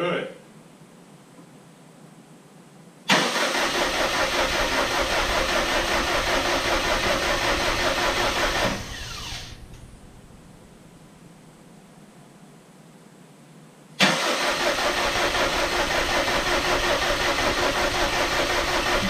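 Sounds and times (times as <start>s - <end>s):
engine cranking by starter motor: 3.1s - 10.6s, 14.0s - 19.0s
falling whine: 4.0s - 11.5s.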